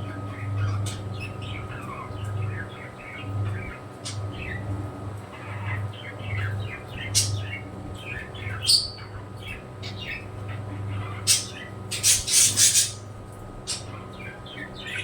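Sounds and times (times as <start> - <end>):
pet birds chirping: 0.0 - 15.0
loud sharp bird calls: 5.6 - 13.1.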